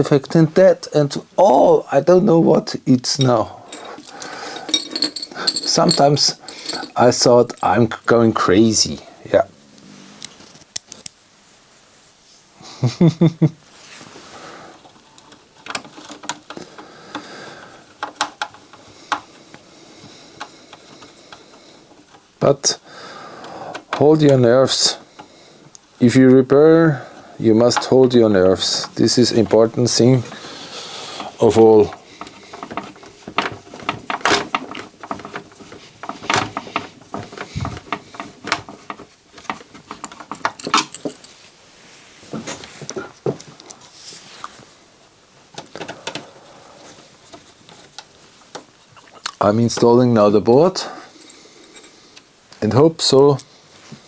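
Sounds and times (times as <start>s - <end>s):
clicks and knocks from handling parts: 3.0s - 8.2s, 14.8s - 22.8s, 23.4s - 26.1s, 27.1s - 41.4s, 45.4s - 50.0s
clicks and taps of hand tools: 18.0s - 19.6s.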